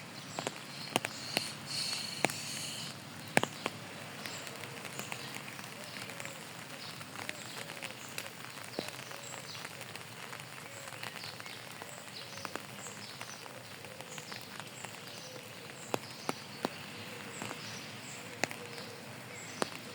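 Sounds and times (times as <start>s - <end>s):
steady rain: 0.0s - 19.9s
faint high chirps: 0.7s - 3.0s.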